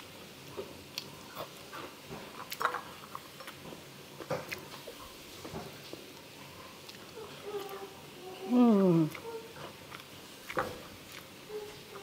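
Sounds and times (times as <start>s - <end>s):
chewing and lip-smacking: 0.9s - 5.1s, 6.1s - 7.8s, 9.1s - 12.0s.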